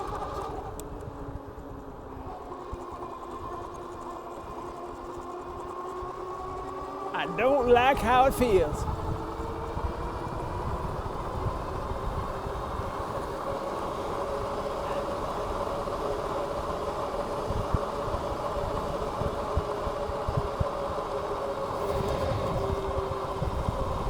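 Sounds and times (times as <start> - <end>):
wind buffeting microphone: 8.8 - 16.8, 17.4 - 24.0.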